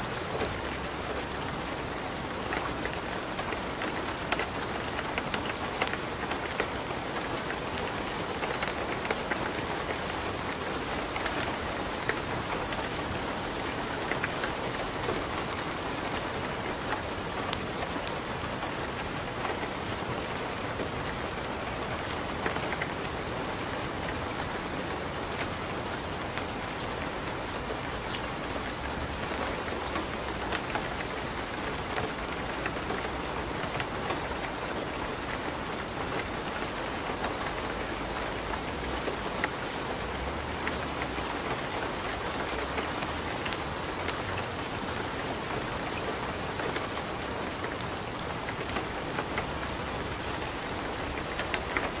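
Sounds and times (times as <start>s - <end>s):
wood fire crackling: 0.0s - 52.0s
fire popping and snapping: 40.3s - 52.0s.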